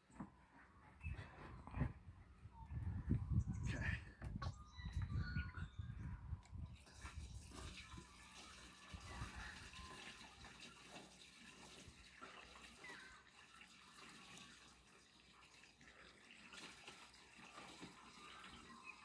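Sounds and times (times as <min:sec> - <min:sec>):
diesel pouring into tank: 0:06.9 - 0:18.8.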